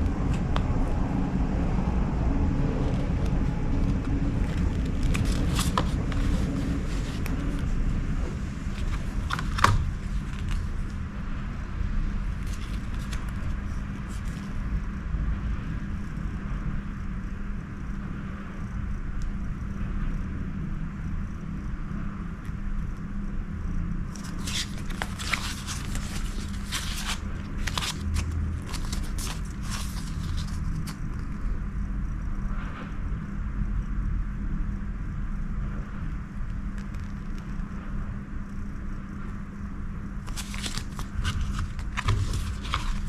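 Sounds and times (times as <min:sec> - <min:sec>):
low rumble with faint hum: 0:00.0 - 0:43.0
handling clicks and rustles: 0:02.9 - 0:07.7, 0:08.7 - 0:11.0, 0:24.1 - 0:31.3, 0:40.2 - 0:43.0.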